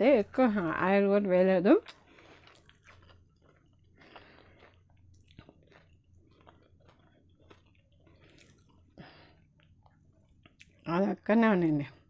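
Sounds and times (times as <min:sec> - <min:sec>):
chewing with mouth closed: 0:01.8 - 0:10.9.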